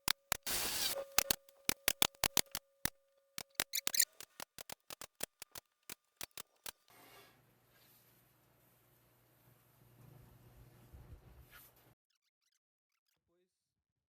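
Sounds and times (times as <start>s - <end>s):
sharp dry clicks: 0.0s - 6.9s.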